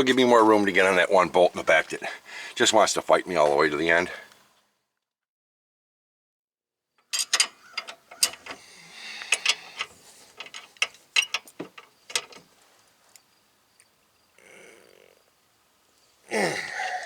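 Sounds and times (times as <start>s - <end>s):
metal tool clanks: 7.1s - 8.6s, 9.2s - 12.5s.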